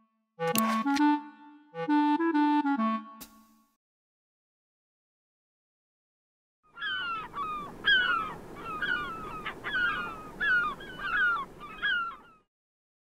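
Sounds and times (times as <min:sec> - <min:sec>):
birds calling: 0:06.7 - 0:12.5.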